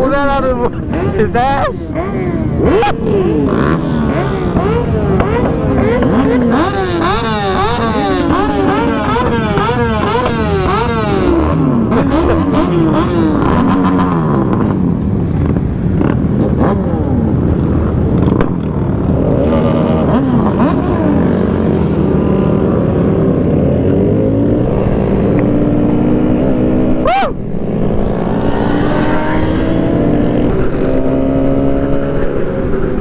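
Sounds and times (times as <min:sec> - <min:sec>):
motorcycle engines revving: 0:00.0 - 0:33.0.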